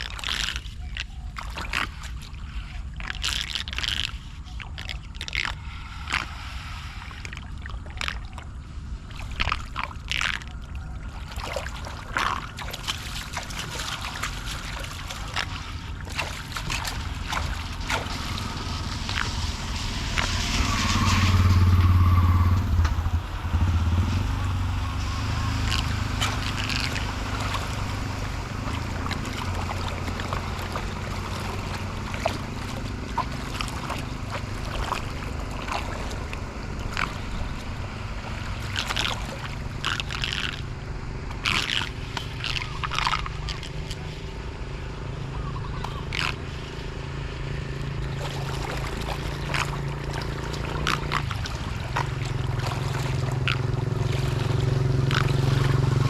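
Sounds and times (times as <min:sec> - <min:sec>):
low rumble: 0:04.4 - 0:56.0
water gurgling at a drain: 0:07.1 - 0:56.0
debris scraping and splashing: 0:09.2 - 0:22.1, 0:24.9 - 0:40.7, 0:41.3 - 0:44.3, 0:47.8 - 0:56.0.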